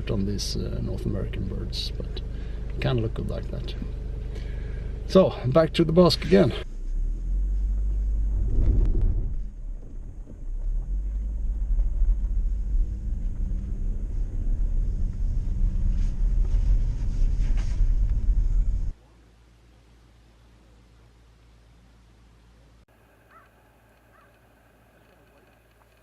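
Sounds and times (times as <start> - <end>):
car driving from inside cabin: 0.1 - 19.0.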